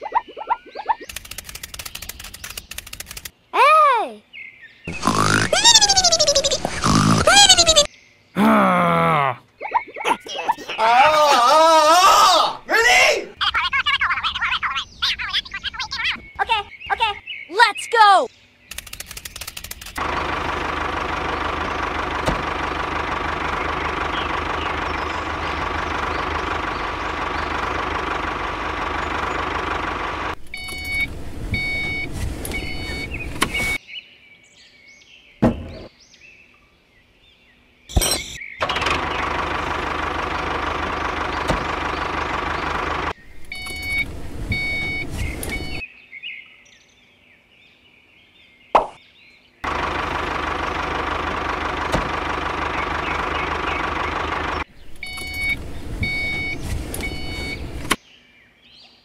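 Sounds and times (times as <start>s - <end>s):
tractor engine running: 1.0s - 3.3s, 4.9s - 7.9s, 18.7s - 33.8s, 37.9s - 45.8s, 49.6s - 58.0s
sharp clicks: 1.0s - 3.4s, 18.7s - 20.0s.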